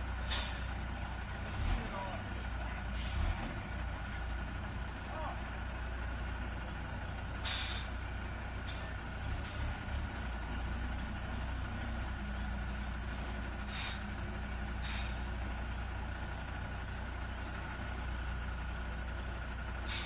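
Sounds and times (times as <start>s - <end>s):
truck engine running slowly: 0.0s - 20.0s
air brakes hissing: 0.2s - 0.7s, 2.9s - 3.4s, 7.4s - 8.0s, 13.5s - 15.4s, 19.8s - 20.0s.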